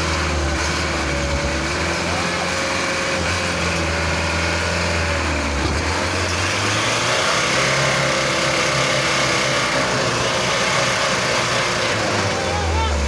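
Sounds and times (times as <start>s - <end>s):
diesel truck engine under load: 0.0s - 13.0s.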